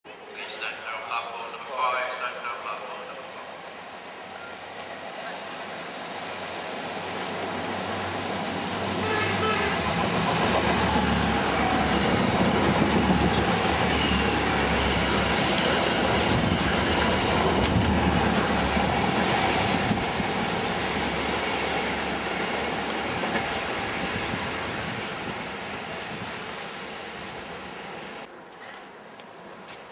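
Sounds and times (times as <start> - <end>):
rail vehicle passing on rails: 0.2 - 29.9
train horn: 9.0 - 9.9.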